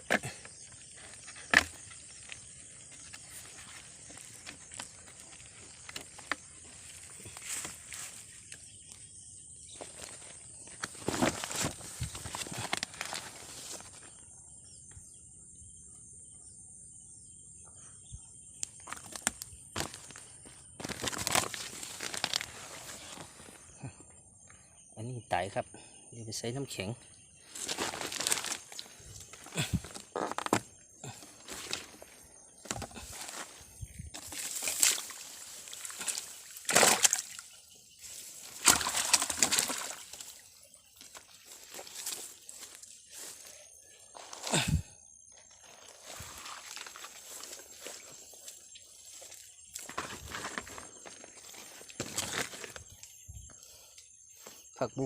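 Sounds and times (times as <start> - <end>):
crickets chirping: 0.0 - 55.0
handling noise rustling: 9.8 - 14.0, 27.5 - 36.4
water sloshing and splashing: 32.6 - 42.8.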